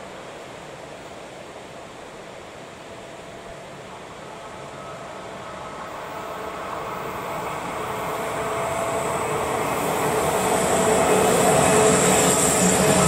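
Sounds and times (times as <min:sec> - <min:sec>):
faint steady whine: 0:00.0 - 0:13.0
train wheels rumbling on rail: 0:03.6 - 0:13.0.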